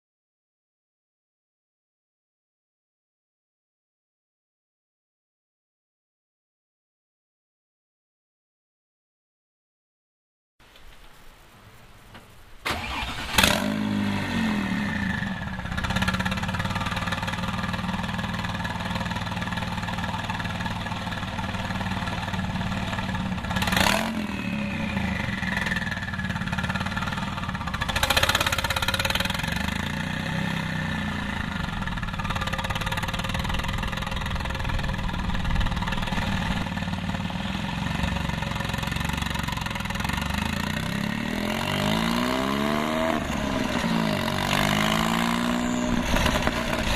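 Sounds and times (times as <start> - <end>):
car engine starting and idling: 12.6 - 29.8, 30.9 - 40.5
engine throttle blips: 12.7 - 40.6, 42.0 - 46.9.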